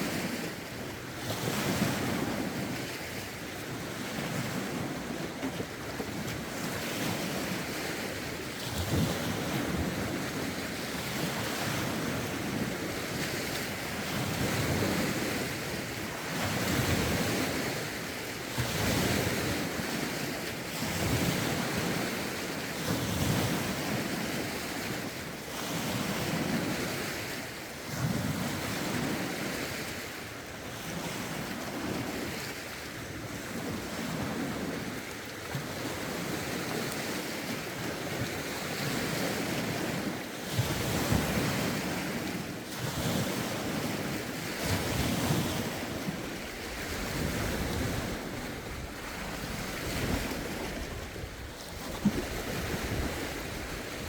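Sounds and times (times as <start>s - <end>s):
lake waves washing in: 0.0s - 54.0s
wind buffeting microphone: 35.7s - 54.0s.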